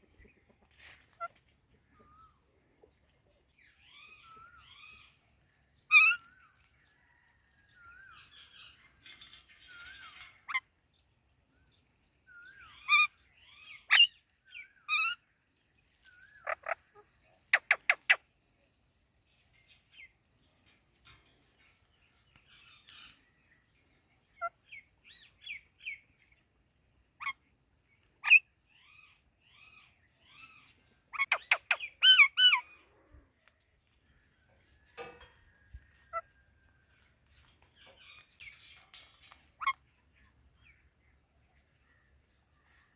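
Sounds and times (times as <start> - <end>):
parakeets chattering softly: 16.0 - 18.2
parakeet shrill calls: 31.2 - 32.6.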